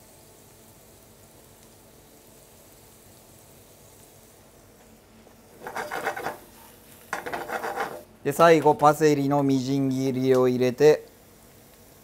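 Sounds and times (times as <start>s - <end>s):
faint frying sizzle: 0.0s - 12.0s
tongs scraping in pan: 5.6s - 8.1s.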